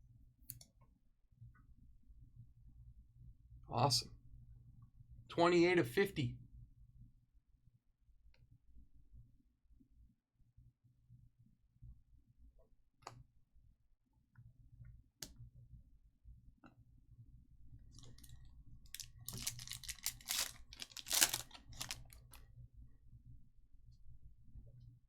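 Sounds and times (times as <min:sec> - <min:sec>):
foil wrapper crinkling and tearing: 0:18.0 - 0:22.4
cards clicking: 0:19.0 - 0:22.2.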